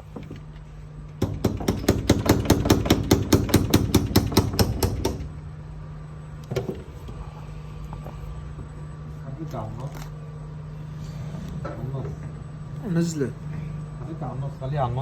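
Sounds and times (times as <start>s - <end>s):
rapid hammering on a car: 1.2s - 5.4s.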